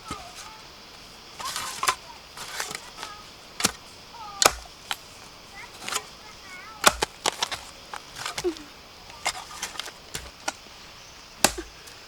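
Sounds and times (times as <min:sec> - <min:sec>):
blade chopping: 0:00.0 - 0:10.6, 0:11.4 - 0:12.0.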